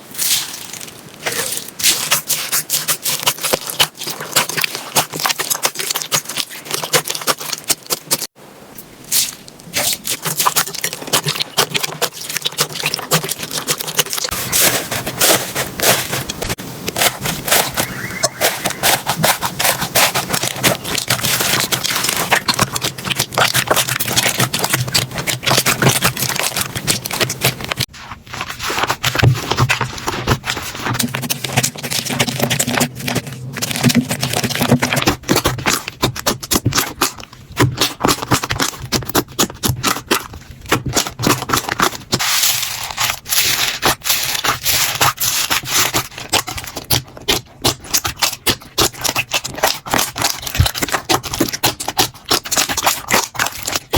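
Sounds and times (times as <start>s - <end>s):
slime squished by hand: 0.2s - 8.4s, 9.1s - 27.8s, 28.4s - 53.9s.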